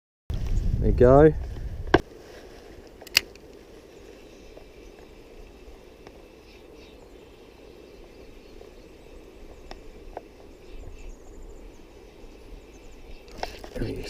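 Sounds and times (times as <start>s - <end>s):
faint clicks: 9.4s - 10.3s.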